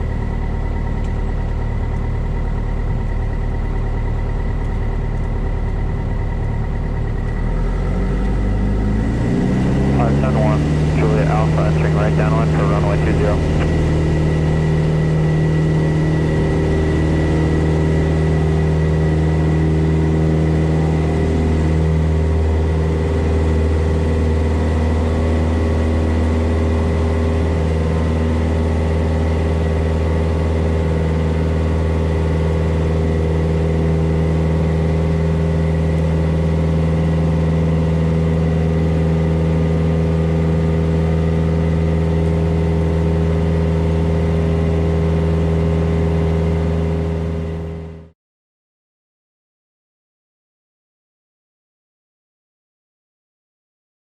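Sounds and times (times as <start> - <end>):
propeller plane engine droning: 0.0 - 48.1.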